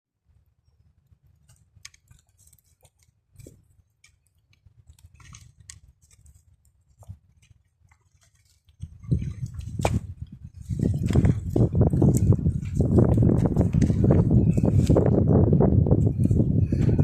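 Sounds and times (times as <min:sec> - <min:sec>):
crunching footsteps on trail: 0:01.4 - 0:17.0
wind rumble on microphone: 0:08.7 - 0:17.0.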